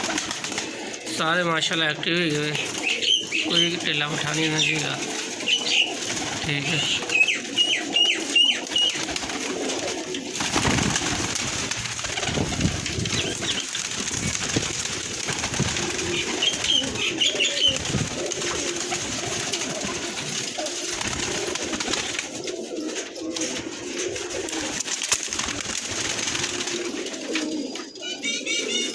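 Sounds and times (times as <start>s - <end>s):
pigeons cooing: 0.0s - 28.9s
high bird chirps: 2.7s - 6.0s, 6.9s - 9.1s, 11.6s - 14.6s, 15.8s - 17.9s.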